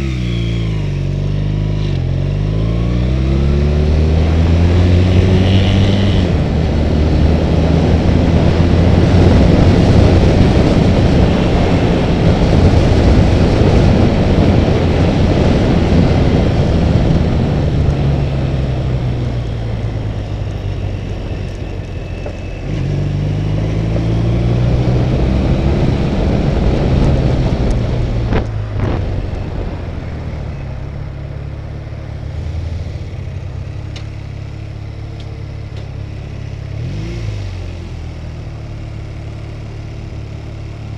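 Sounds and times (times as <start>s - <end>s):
motorcycle engine running: 0.0s - 40.9s
wind rush: 4.0s - 33.4s.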